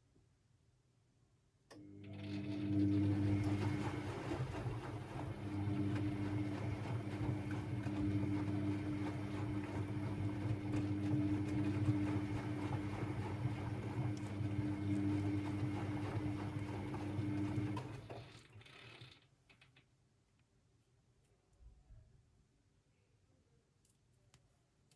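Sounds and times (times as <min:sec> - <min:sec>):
washing machine motor humming: 0:01.8 - 0:19.2.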